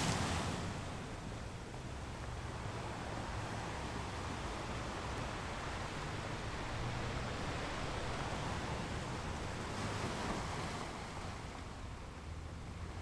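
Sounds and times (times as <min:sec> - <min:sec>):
ocean waves on shore: 0:00.0 - 0:01.3.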